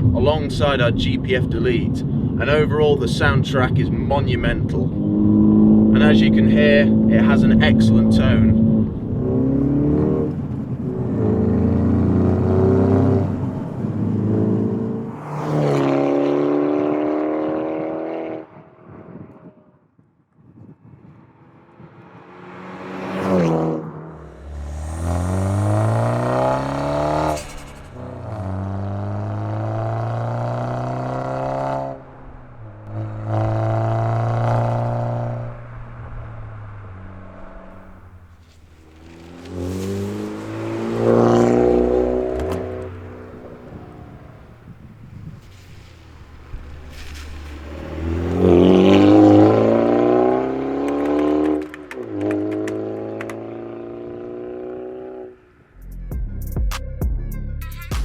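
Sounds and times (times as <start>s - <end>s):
car engine accelerating through gears: 4.6s - 19.6s, 20.8s - 55.6s.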